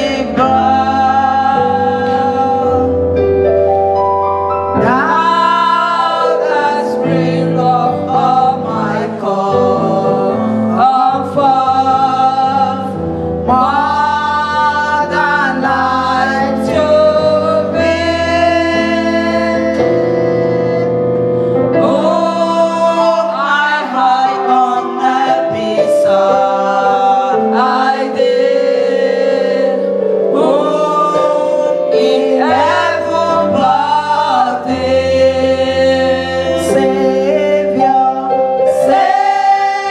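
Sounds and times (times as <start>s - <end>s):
choir singing gospel: 0.0s - 39.9s
keyboard accompaniment: 0.0s - 39.9s.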